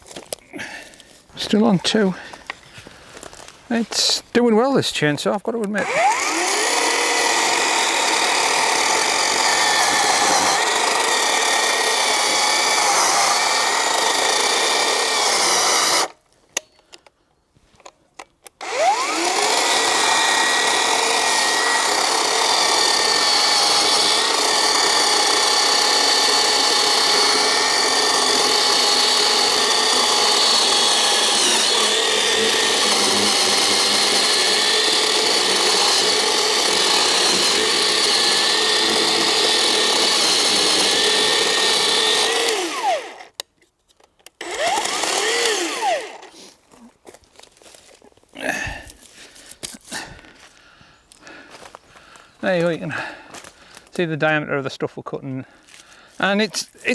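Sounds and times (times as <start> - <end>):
electric chainsaw cutting wood: 5.8 - 16.2, 18.5 - 43.4, 44.3 - 46.6.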